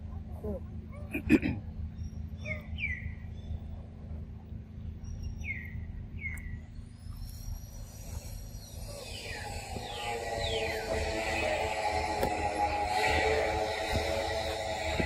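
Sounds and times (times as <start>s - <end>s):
steady low hum: 0.0s - 15.0s
bird chirping: 1.7s - 3.8s, 4.7s - 14.9s
background music: 9.2s - 15.0s.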